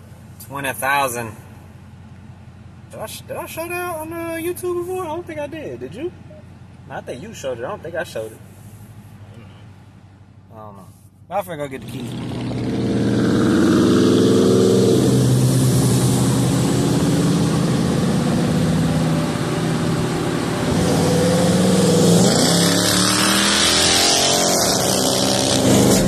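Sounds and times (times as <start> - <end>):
road and wind noise: 4.6 - 26.0
car engine accelerating: 11.8 - 26.0.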